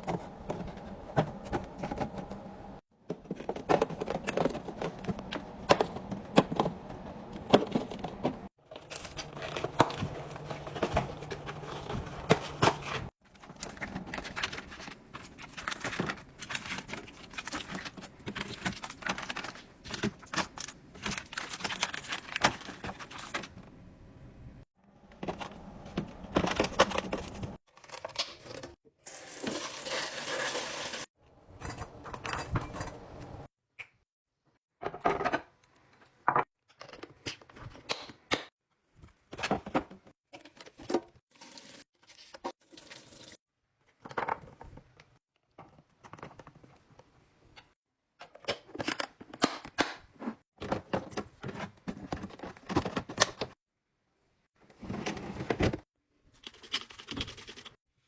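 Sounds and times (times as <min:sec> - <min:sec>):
plastic packaging crinkling and tearing: 0:08.8 - 0:23.4.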